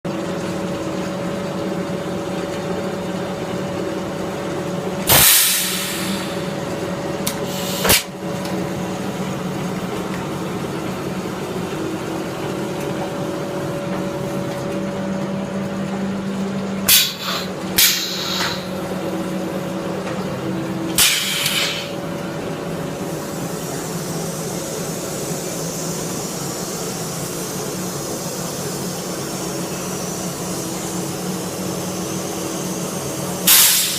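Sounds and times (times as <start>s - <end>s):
compressed air hisses: 5.1s - 6.6s, 7.4s - 8.1s, 16.9s - 18.8s, 21.0s - 22.0s, 23.0s - 33.9s.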